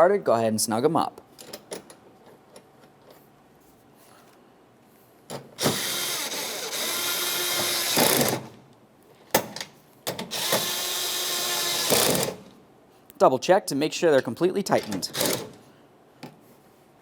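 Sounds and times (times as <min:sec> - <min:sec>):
power tool spinning nuts: 0:05.6 - 0:08.4, 0:10.3 - 0:12.4.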